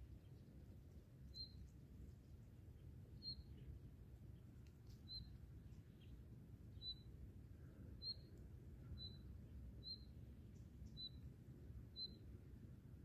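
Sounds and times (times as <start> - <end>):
bird chirping: 3.2 - 3.7, 5.0 - 5.3, 5.9 - 7.1, 9.0 - 10.1, 10.8 - 11.2, 11.9 - 12.2.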